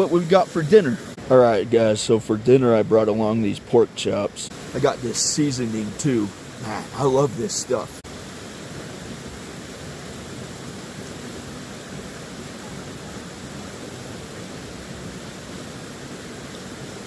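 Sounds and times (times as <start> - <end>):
steady rushing noise: 0.0 - 12.4.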